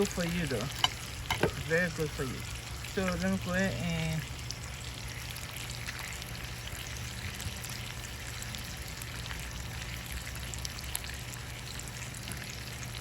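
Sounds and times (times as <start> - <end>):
chicken sizzling: 0.0 - 4.8.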